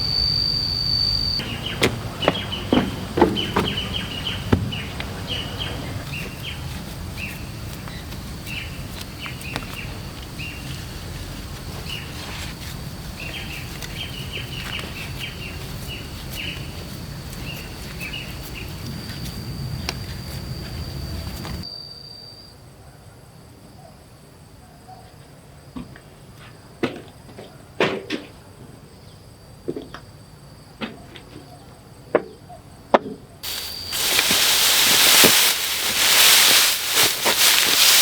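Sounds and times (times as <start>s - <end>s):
sharp knocks: 1.4s - 5.4s
small birds chirping: 1.4s - 12.3s, 13.0s - 20.1s, 33.4s - 38.0s
low outdoor rumble: 1.4s - 21.6s.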